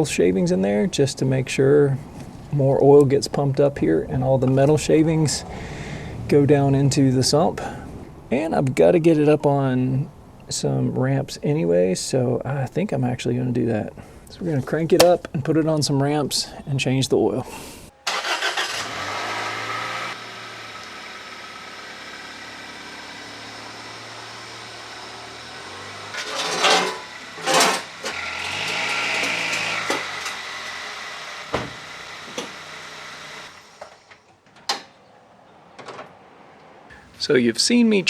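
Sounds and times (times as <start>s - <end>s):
car engine idling: 0.0s - 15.1s, 17.4s - 38.0s
sharp knocks: 26.1s - 34.1s.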